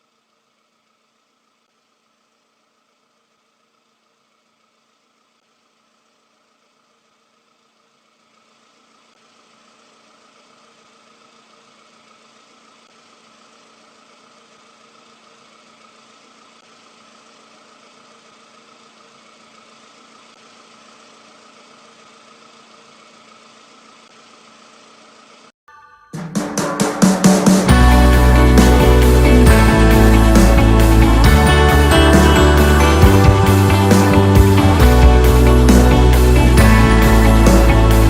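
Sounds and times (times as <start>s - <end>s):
engine idling: 27.6s - 38.0s.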